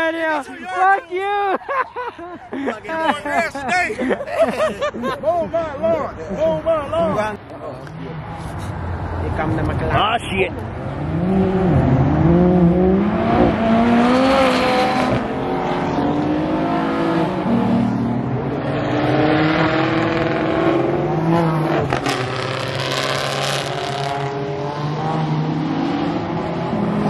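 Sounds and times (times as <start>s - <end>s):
sports cars accelerating past: 7.9s - 27.0s.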